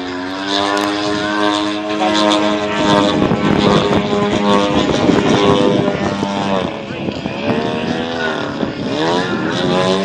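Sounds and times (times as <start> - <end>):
model plane engine running: 0.0 - 10.0.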